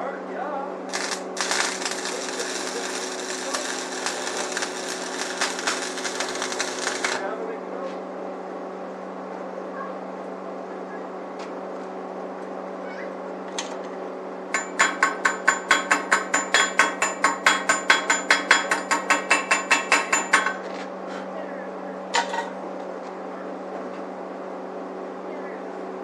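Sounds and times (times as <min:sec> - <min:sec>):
electrical hum: 0:00.0 - 0:14.8
hammer striking metal: 0:14.6 - 0:20.6.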